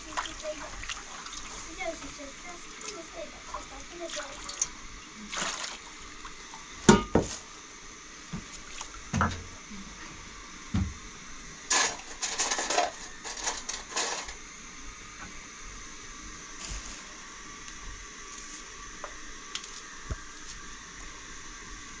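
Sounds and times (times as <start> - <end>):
steady background hiss: 0.0 - 22.0
scraping and rustling: 11.7 - 14.4, 16.6 - 17.2.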